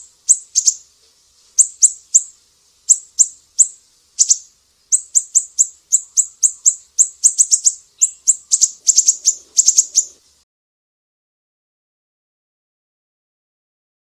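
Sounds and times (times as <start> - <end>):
bird chirping: 0.0 - 0.9, 1.6 - 10.2.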